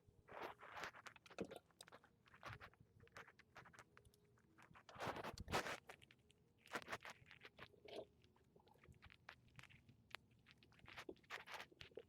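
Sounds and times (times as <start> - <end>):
scrape: 4.9 - 6.0.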